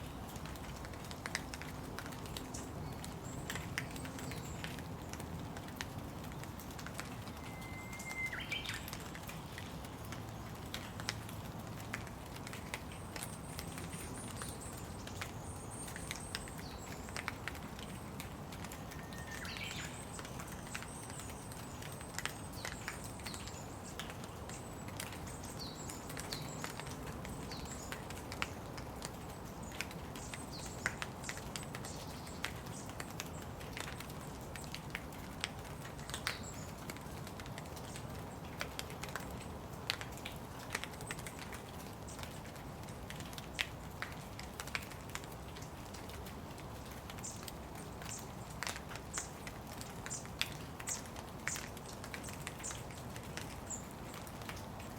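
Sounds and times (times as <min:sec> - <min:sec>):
rain falling: 0:00.0 - 0:54.9
bird chirping: 0:07.4 - 0:09.0.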